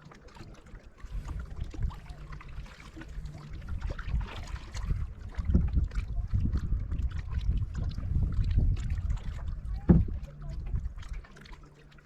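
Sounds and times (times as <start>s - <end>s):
small splashes: 0.0s - 12.0s
water lapping against kayak hull: 0.0s - 12.0s
wind rumbling on microphone: 1.0s - 11.4s.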